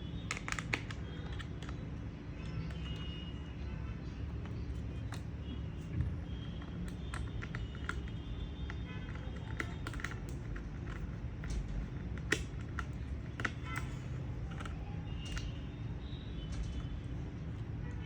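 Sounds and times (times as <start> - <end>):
small parts clicking and tapping: 0.0 - 17.9.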